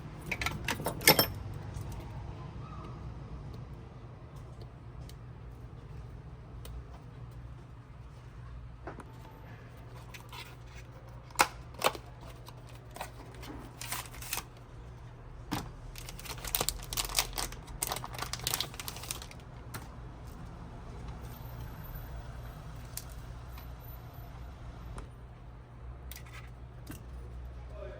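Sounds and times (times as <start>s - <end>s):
tools and plastic parts clicking: 0.2s - 2.0s.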